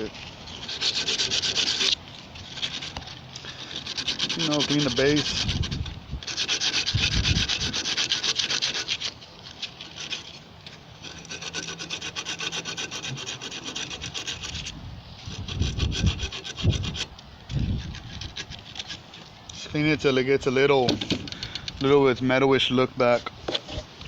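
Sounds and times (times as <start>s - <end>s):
abrasive scrubbing on metal: 0.0s - 10.4s, 11.0s - 19.2s.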